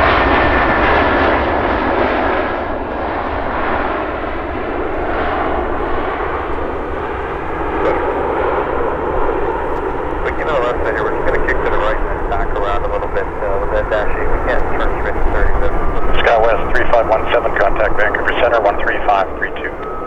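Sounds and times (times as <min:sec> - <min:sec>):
jet engines passing: 0:00.0 - 0:20.0.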